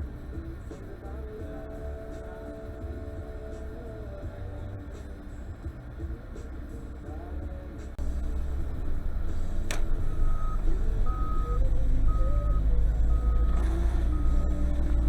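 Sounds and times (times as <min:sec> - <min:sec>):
vehicle engine rumbling: 0:00.0 - 0:15.0
sharp click: 0:09.6 - 0:10.0
warning beeper beeps: 0:09.8 - 0:14.9.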